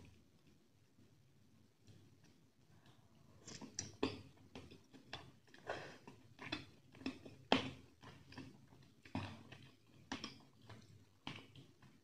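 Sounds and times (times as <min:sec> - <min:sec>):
open-mouth chewing: 0:02.8 - 0:12.0.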